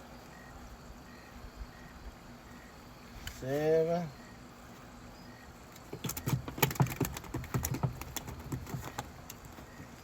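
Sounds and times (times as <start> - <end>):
clicks and knocks of handling: 5.8 - 9.7.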